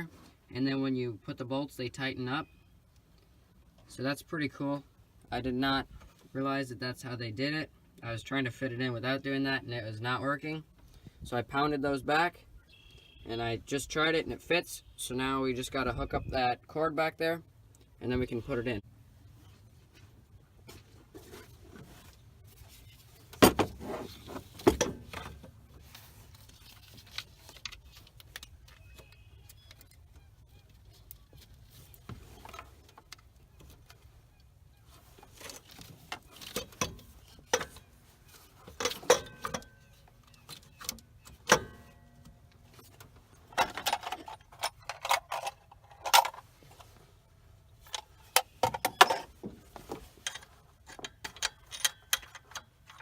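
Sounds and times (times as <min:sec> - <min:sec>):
metal tools clinking and knocking: 0:35.3 - 0:42.5, 0:43.5 - 0:46.5, 0:50.1 - 0:53.0.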